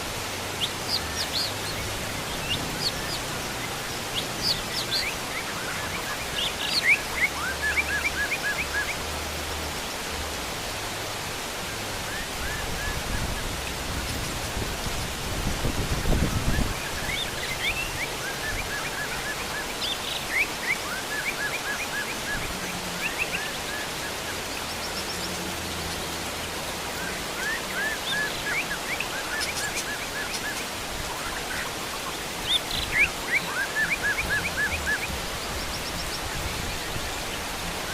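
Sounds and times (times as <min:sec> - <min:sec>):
heavy rain on bamboo and pond: 0:00.0 - 0:37.9
birds chirping and whistling: 0:15.9 - 0:26.2, 0:26.9 - 0:37.9.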